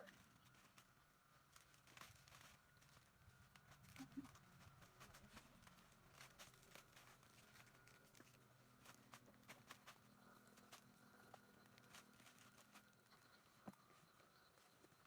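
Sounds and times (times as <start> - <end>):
faint clicks and taps: 0.1 - 15.0.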